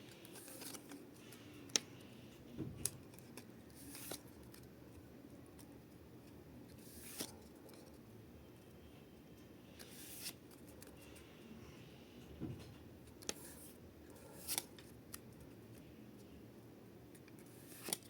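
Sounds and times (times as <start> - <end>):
cards and wrappers rustling: 0.1 - 2.0, 2.8 - 4.7.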